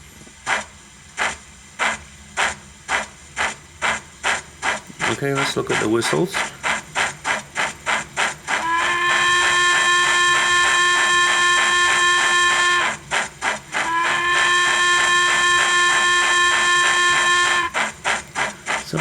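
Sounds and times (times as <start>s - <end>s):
steam locomotive exhaust chuffs: 0.0s - 19.0s
steam whistle blasts: 2.4s - 19.0s.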